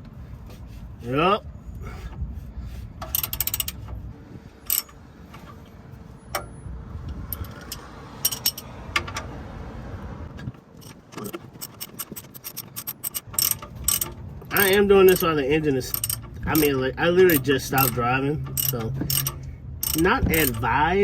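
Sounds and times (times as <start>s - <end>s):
low steady rumble: 0.0s - 21.0s
socket ratchet clicking: 3.0s - 3.8s, 4.7s - 5.0s, 7.4s - 8.7s, 10.8s - 20.6s
metallic tool clicks: 4.7s - 5.0s, 7.4s - 8.7s, 10.8s - 15.3s, 15.9s - 20.6s.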